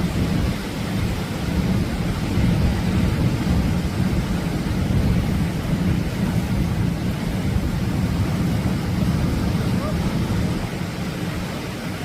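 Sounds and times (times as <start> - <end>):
surf breaking on beach: 0.0 - 12.0
wind rumble on microphone: 0.0 - 12.0.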